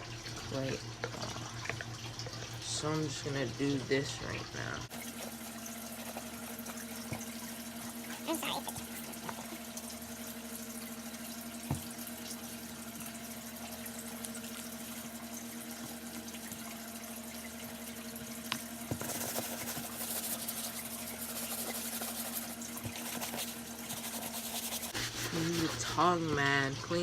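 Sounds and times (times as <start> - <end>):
brush scrubbing rubber sole: 18.9 - 26.2.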